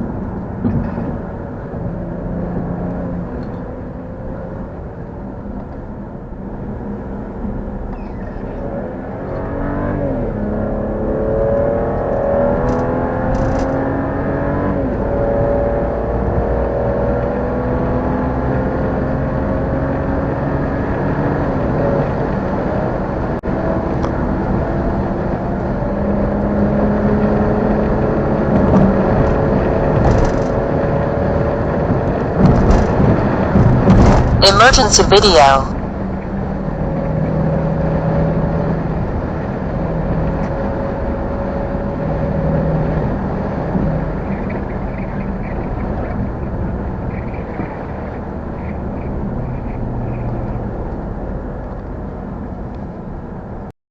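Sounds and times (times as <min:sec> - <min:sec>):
car engine accelerating through gears: 0:08.5 - 0:34.4.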